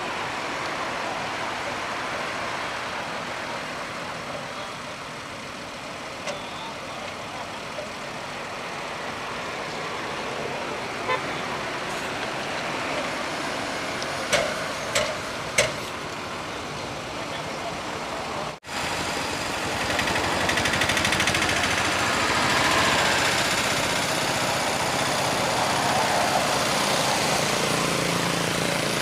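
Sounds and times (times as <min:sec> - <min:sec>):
highway traffic passing: 0:00.0 - 0:29.0
sharp knocks: 0:14.3 - 0:15.9.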